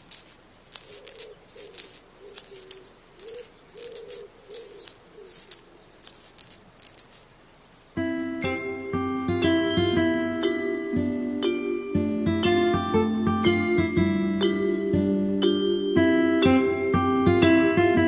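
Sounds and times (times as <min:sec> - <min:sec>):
soft dry rattling strokes: 0:00.0 - 0:08.0
glockenspiel-like mallet music: 0:13.4 - 0:18.0.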